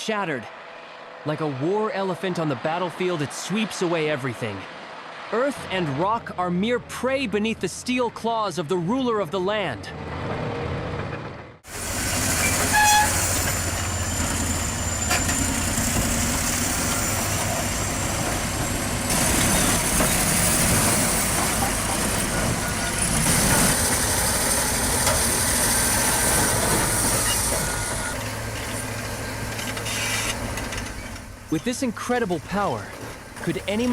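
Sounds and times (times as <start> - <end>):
bulldozer engine running under load: 10.1 - 33.9.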